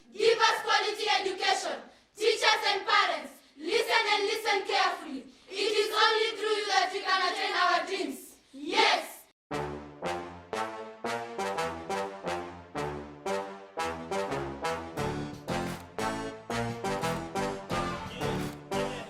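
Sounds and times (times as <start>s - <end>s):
children singing unaccompanied: 0.0s - 9.0s.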